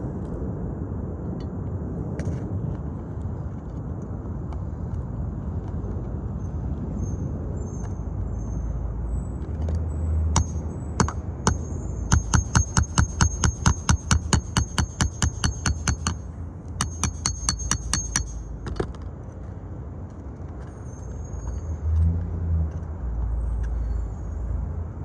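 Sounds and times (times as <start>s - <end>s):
metallic hammering: 10.3s - 18.8s.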